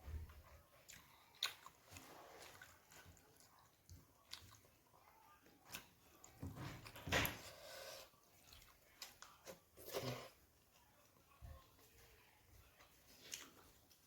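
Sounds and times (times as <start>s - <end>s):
mouth clicks and chewing: 0.5s - 6.4s, 12.8s - 14.0s.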